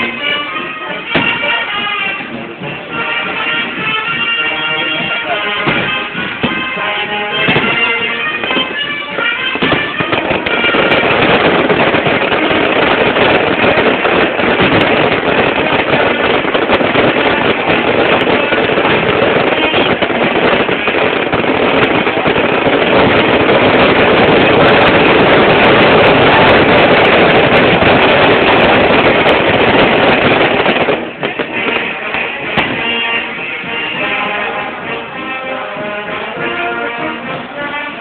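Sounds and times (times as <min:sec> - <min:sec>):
brass band music: 0:00.0 - 0:38.0
fireworks crackling: 0:00.0 - 0:38.0.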